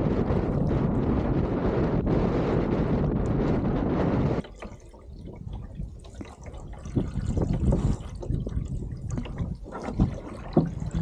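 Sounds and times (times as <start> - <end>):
low rumble: 0.0 - 4.4
water lapping and splashing: 0.0 - 11.0.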